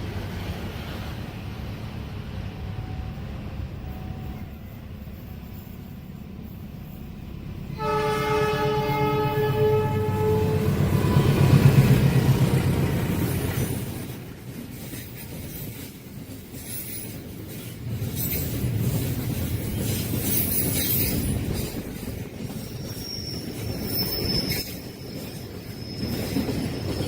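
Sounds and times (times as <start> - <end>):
train wagons rumbling and clattering: 0.0 - 27.0
high wheel squeal: 22.5 - 27.0.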